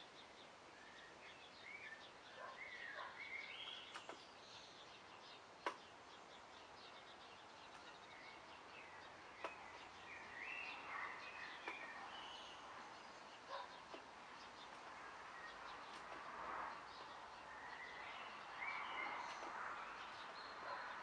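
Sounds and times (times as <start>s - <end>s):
birds chirping and whistling: 7.6s - 12.8s, 17.4s - 20.8s.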